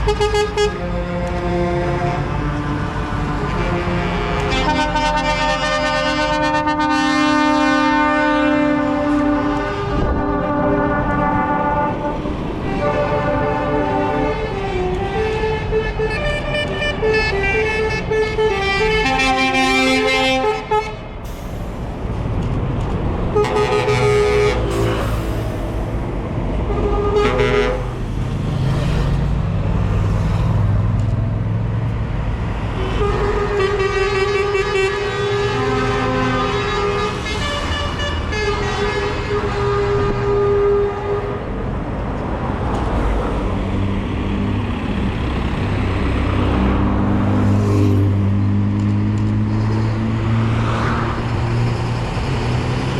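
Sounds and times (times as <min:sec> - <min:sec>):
truck air horns blasting: 0:00.0 - 0:21.8, 0:23.2 - 0:28.3, 0:32.7 - 0:41.6
truck engines rumbling past: 0:00.0 - 0:52.9.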